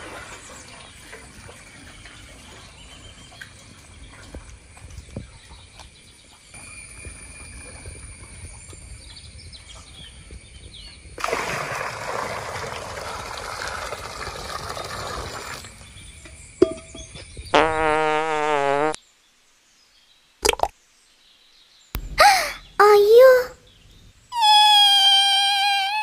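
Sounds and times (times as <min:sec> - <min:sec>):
water pouring into steel bucket: 0:11.2 - 0:15.8.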